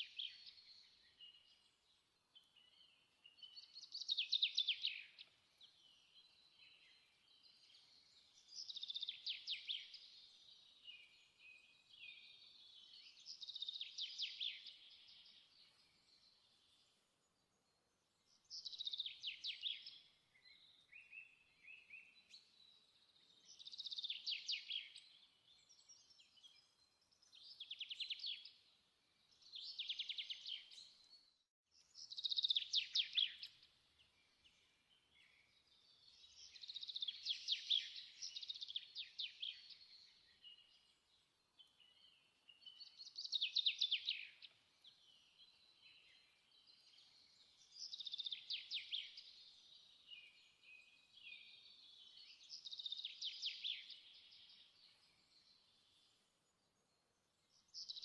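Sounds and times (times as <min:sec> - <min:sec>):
songbird singing trilled phrases: 0:31.9 - 0:33.7, 0:35.2 - 0:58.0.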